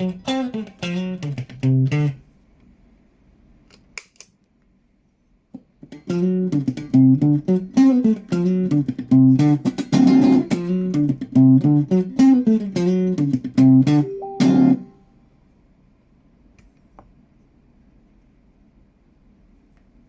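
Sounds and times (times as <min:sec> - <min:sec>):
filtered electric guitar riff: 0:00.0 - 0:02.2, 0:06.0 - 0:15.0.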